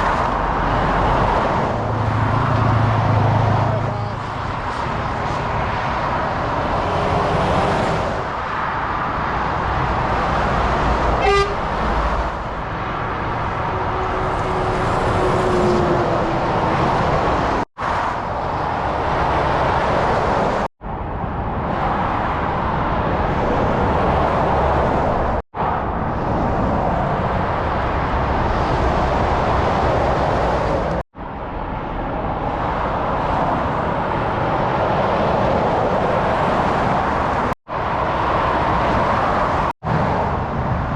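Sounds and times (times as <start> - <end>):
motorway traffic roar: 0.0 - 40.9
vehicle horn: 11.2 - 11.8, 13.6 - 16.0.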